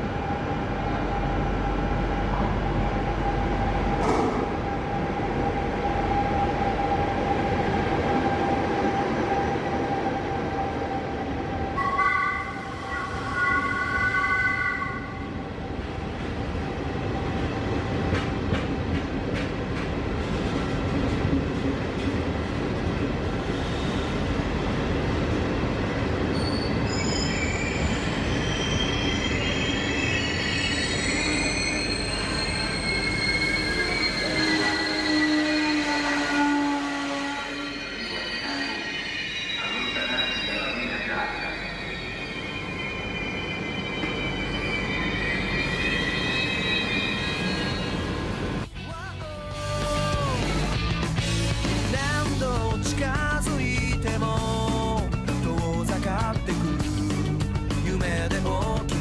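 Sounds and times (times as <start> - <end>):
train wheels clicking over rails: 18.0 - 22.2
high-pitched wheel squeal: 26.3 - 48.1.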